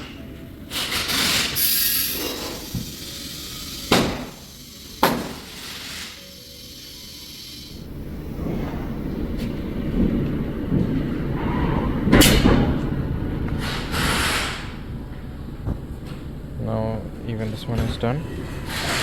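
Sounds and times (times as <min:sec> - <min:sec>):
hissing burst: 0:00.0 - 0:09.4
tyre machine rumble: 0:00.0 - 0:19.0
loud sharp burst: 0:00.7 - 0:06.4.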